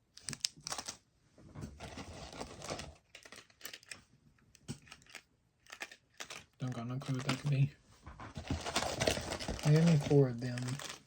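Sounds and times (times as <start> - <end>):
plastic wrappers crinkling: 0.2 - 1.0, 1.8 - 4.0, 4.8 - 7.7, 8.4 - 11.0.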